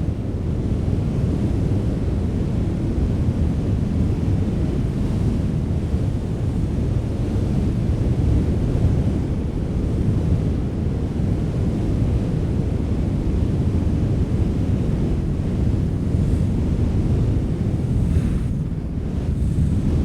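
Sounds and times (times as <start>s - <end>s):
wind blowing: 14.3s - 20.0s.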